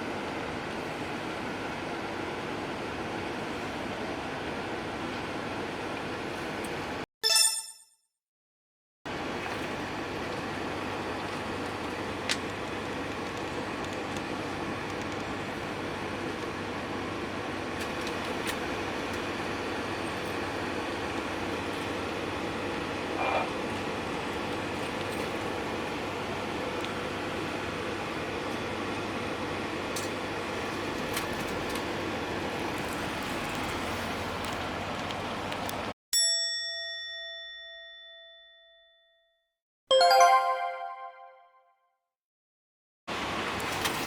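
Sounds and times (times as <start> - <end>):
bus engine and road noise: 0.0 - 7.0, 9.1 - 35.9, 43.1 - 44.0.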